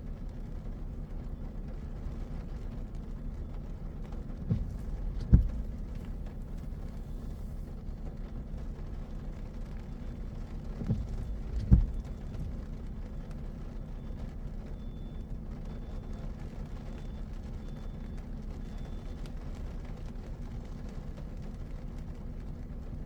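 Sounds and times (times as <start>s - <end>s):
car road and engine rumble: 0.0s - 23.0s
thumps: 4.4s - 7.7s, 10.6s - 13.4s.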